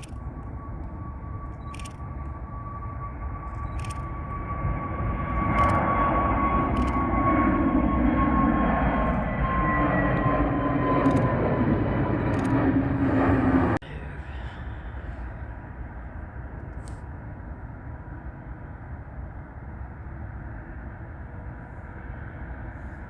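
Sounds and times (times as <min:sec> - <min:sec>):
jet airliner engine whine: 0:00.0 - 0:23.0
sharp clicks: 0:03.5 - 0:04.1, 0:05.4 - 0:05.8, 0:06.6 - 0:07.0, 0:11.0 - 0:11.4.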